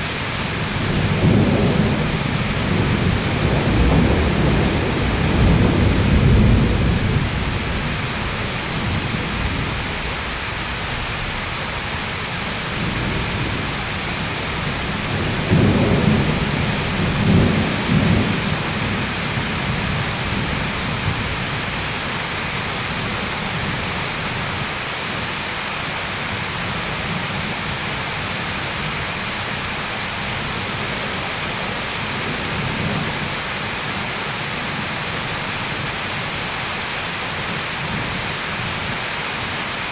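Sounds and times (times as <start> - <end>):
heavy rain: 0.0 - 39.9
rolling thunder: 0.1 - 21.9.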